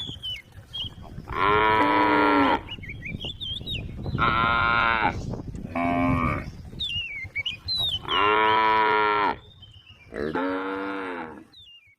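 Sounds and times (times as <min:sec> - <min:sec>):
cow mooing: 0:01.3 - 0:02.7, 0:04.2 - 0:06.5, 0:08.0 - 0:09.4, 0:10.1 - 0:11.5.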